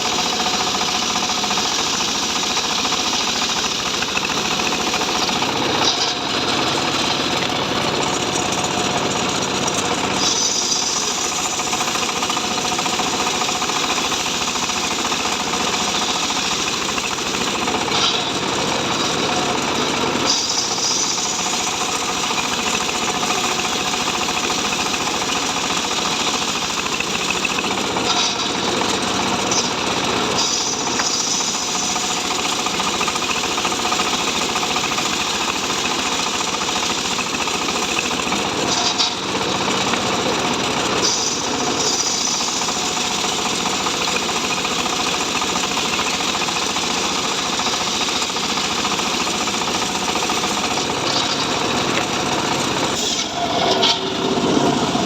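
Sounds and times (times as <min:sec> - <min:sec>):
power saw cutting wood: 0:00.0 - 0:55.0.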